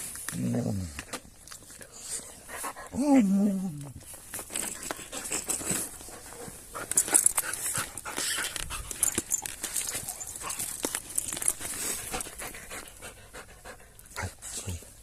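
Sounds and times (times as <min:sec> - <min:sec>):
rustling: 0:03.7 - 0:15.0
dog panting: 0:11.6 - 0:15.0.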